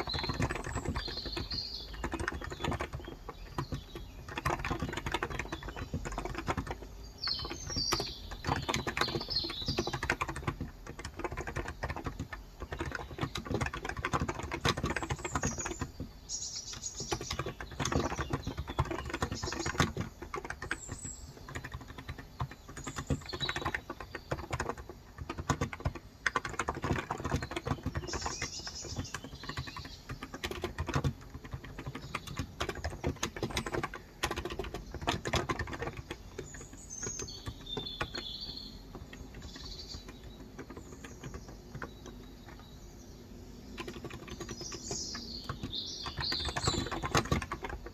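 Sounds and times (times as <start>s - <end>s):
birds chirping: 0.0s - 47.9s
fast keyboard typing: 0.0s - 47.9s.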